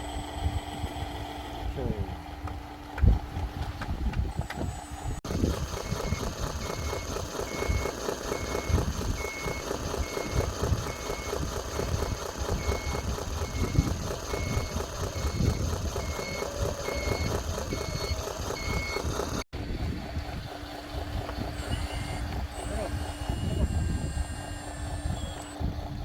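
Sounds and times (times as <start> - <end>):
toy truck rumble and clatter: 3.7 - 26.0
reversing beeper: 5.8 - 19.2, 21.5 - 25.7.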